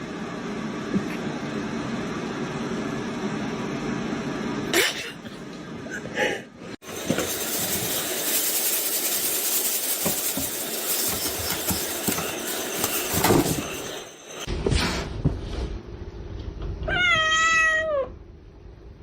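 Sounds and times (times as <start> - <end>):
loud steady hissing: 6.8 - 14.4.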